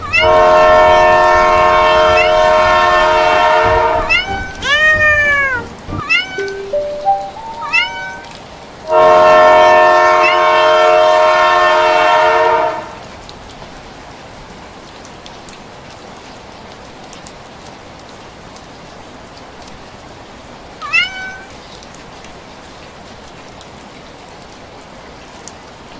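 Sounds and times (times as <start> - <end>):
steady low hiss: 0.0 - 11.5, 14.6 - 23.5
train air horn: 0.0 - 13.1
cat meowing: 4.1 - 6.6, 7.5 - 8.4.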